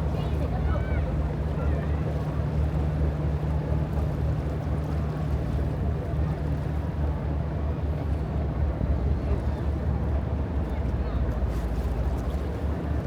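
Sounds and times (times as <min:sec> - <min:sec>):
wind: 0:00.0 - 0:13.0.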